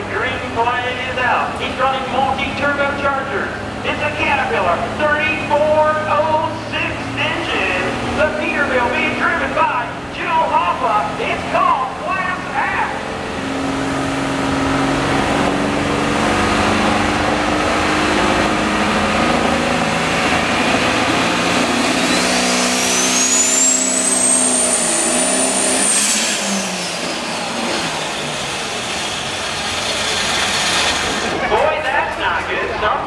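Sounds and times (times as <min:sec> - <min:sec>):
diesel truck engine under load: 0:00.0 - 0:33.0
turbocharger whine: 0:00.0 - 0:33.0.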